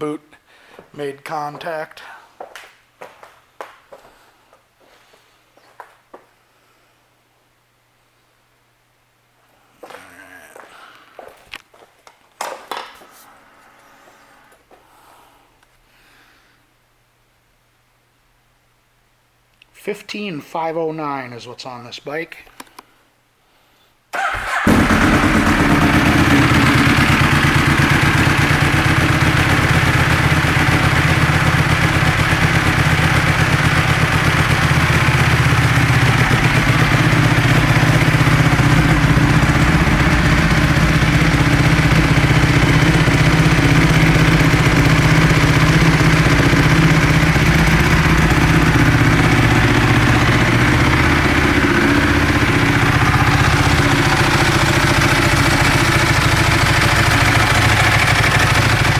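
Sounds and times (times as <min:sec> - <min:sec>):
motorcycle engine idling: 0:24.2 - 0:58.9.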